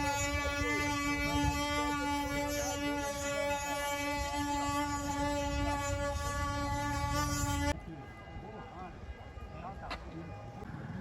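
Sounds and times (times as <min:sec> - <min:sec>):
wooden cart axle whining: 0:00.0 - 0:07.8.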